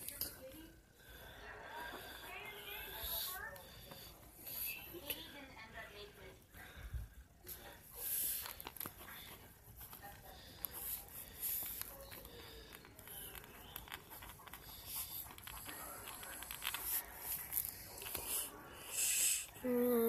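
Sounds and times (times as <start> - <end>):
scratchy rustles: 8.1 - 18.6.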